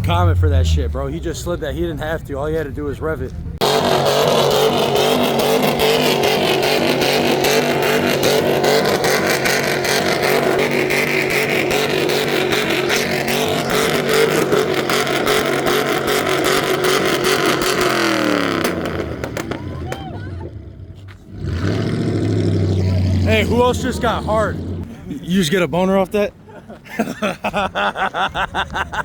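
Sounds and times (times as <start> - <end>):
exhaust crackling: 0.0 - 26.5
car engine at high revs: 3.3 - 24.9.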